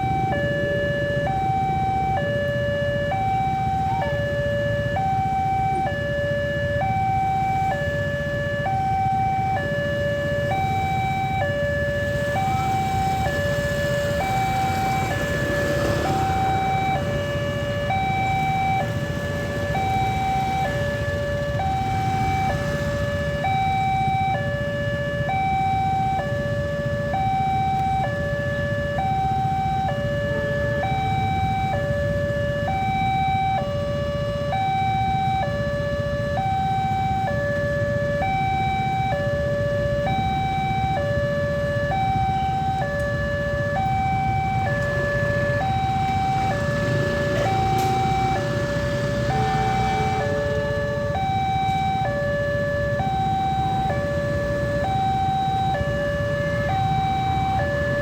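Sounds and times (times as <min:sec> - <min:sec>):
level crossing alarm two-tone: 0:00.0 - 0:37.4, 0:38.0 - 0:58.0.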